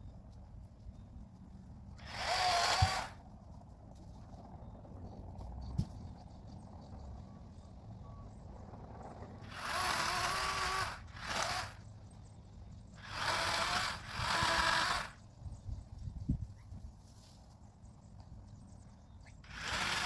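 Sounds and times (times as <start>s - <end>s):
electric chainsaw running: 2.0s - 3.2s, 9.4s - 11.8s, 13.0s - 15.2s, 19.5s - 20.0s.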